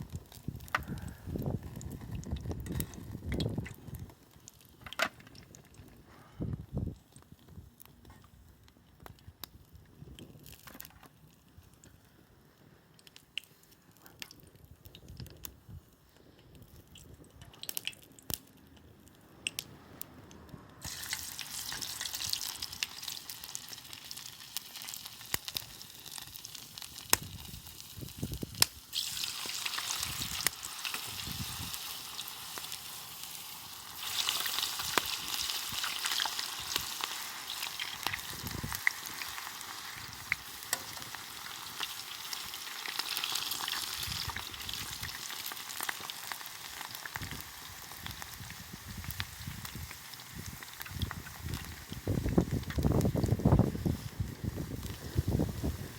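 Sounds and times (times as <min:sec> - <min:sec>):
food sizzling in a pan: 0:20.8 - 0:55.9.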